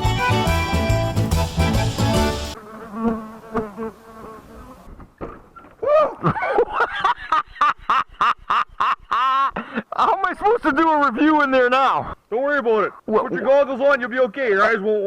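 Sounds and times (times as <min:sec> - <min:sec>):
background music: 0:00.0 - 0:02.6
flying insects buzzing: 0:00.0 - 0:05.0.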